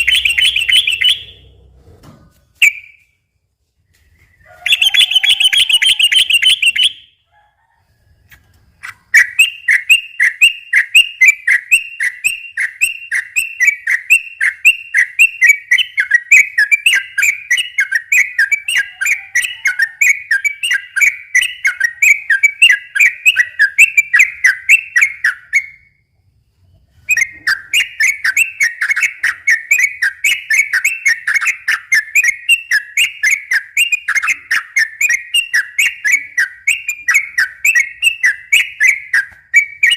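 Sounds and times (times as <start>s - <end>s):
bird singing chattering song: 0.0s - 1.6s, 2.5s - 3.2s, 3.9s - 7.2s, 8.8s - 26.0s, 26.9s - 39.9s.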